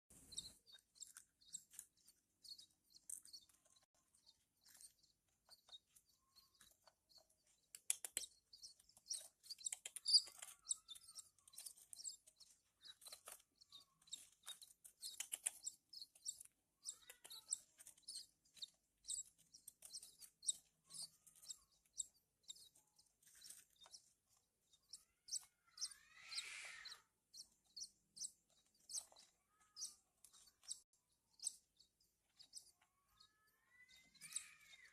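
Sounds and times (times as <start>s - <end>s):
chicks cheeping: 0.1s - 34.9s
longer lower bird call: 25.7s - 27.0s.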